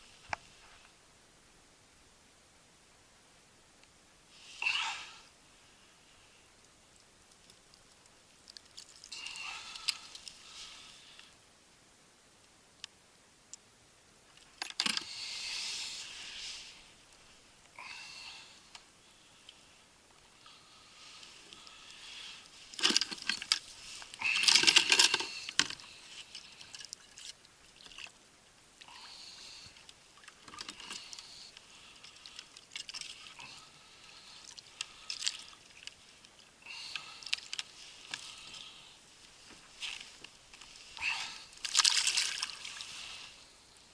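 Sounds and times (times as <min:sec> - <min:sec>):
small clicks and rattles: 0:22.7 - 0:28.0
water splashing and dripping: 0:41.6 - 0:42.8.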